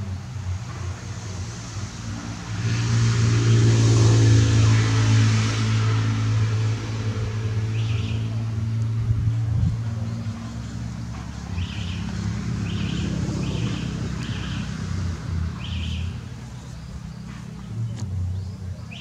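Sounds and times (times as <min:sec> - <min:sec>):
steady low hum: 0:00.0 - 0:19.0
bird chirping call: 0:07.7 - 0:08.4, 0:11.4 - 0:14.8, 0:15.6 - 0:19.0.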